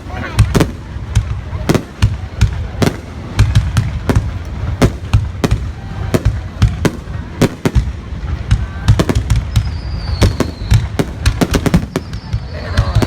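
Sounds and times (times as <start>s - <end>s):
fireworks banging: 0.0s - 13.0s
firework whistle: 8.6s - 13.0s.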